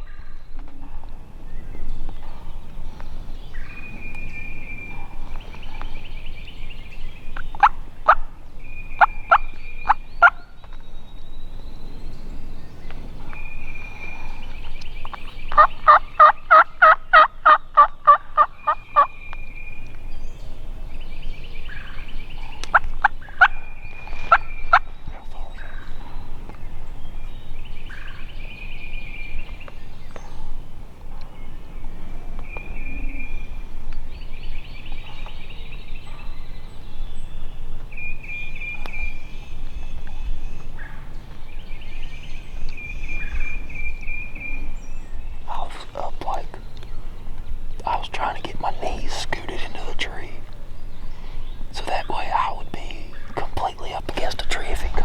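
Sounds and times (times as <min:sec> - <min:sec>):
turkey yelping: 0:15.6 - 0:19.1.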